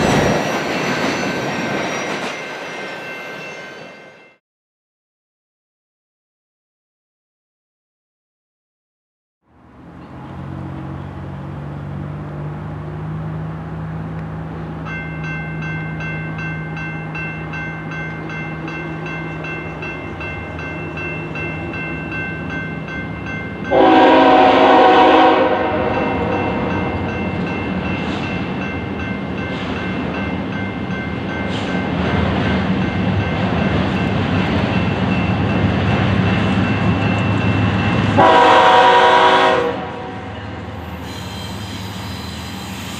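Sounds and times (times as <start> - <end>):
rail noise: 0.0 - 4.4, 9.5 - 42.9
train engine rumble: 9.5 - 42.9
locomotive horn blast: 23.7 - 27.0, 38.2 - 40.4.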